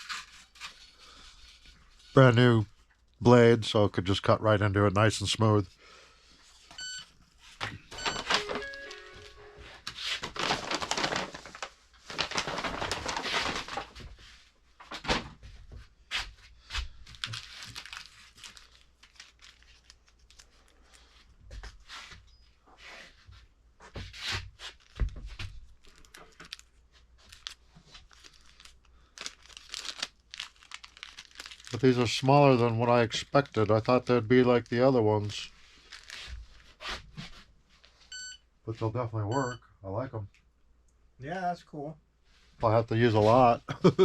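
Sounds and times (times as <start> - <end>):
plastic crinkling and tearing: 0.0 - 2.2, 8.2 - 14.1, 17.0 - 21.2, 24.6 - 37.0.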